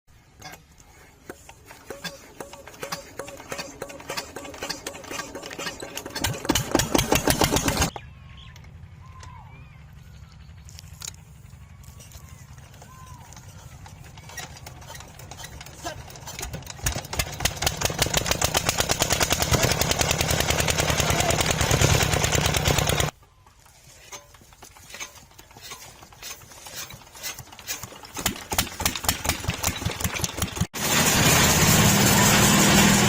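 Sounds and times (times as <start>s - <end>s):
old diesel engine knocking: 1.9s - 8.0s, 12.7s - 23.2s, 24.4s - 30.9s
engine firing irregularly: 13.9s - 23.2s, 28.1s - 33.0s.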